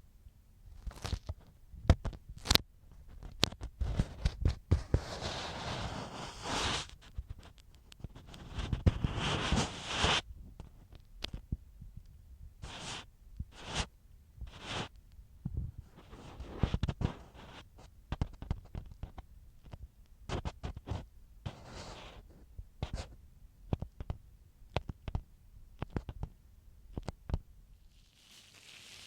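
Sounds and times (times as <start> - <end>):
ear pick scratching in ear: 3.8 - 10.3, 12.6 - 13.9, 14.5 - 15.0, 15.8 - 19.2, 20.3 - 23.2.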